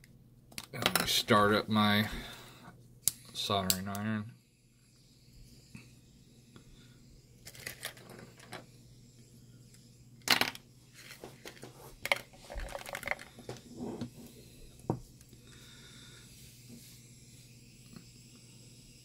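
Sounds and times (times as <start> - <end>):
small tools clicking and rattling: 7.4 - 8.6.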